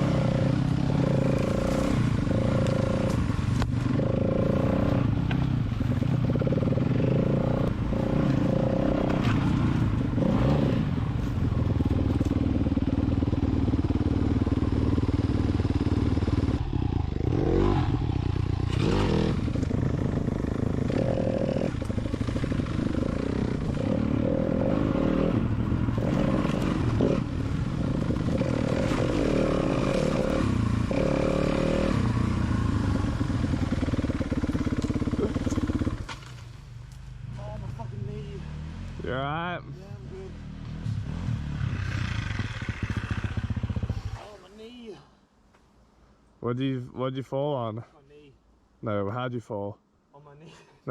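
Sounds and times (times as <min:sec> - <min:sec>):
dirt bike engine revving: 0:00.0 - 0:11.1, 0:11.8 - 0:36.1, 0:40.3 - 0:44.2.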